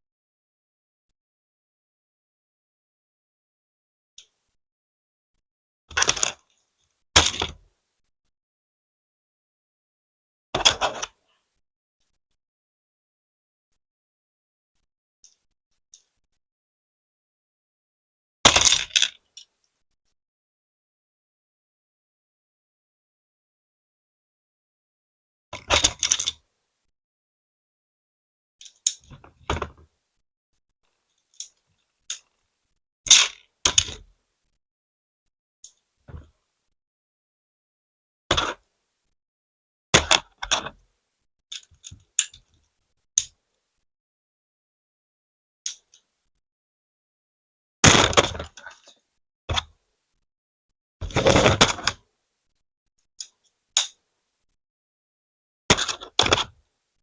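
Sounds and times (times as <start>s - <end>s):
plastic bricks clattering: 18.5s - 19.2s
plastic toy bricks clicking and rattling: 18.5s - 19.6s, 25.6s - 26.4s, 41.5s - 42.5s, 53.2s - 54.0s.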